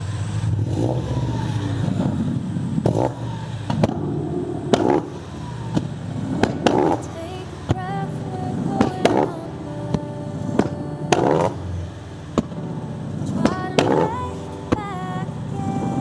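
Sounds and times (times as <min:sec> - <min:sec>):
car engines running: 0:00.0 - 0:07.7.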